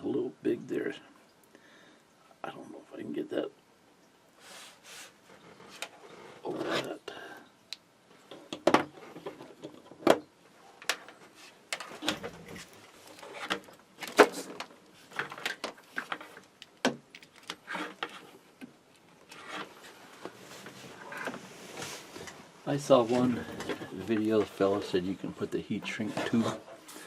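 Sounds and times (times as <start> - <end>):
handling small wires and tubing: 8.2 - 27.0.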